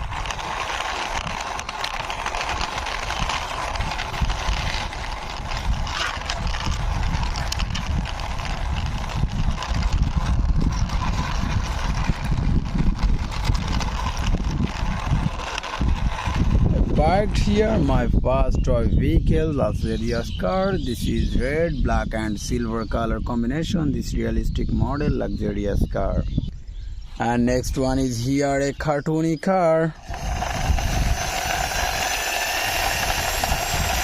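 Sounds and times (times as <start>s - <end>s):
toy car wheels rolling and clattering: 0.0s - 18.5s, 30.0s - 34.0s.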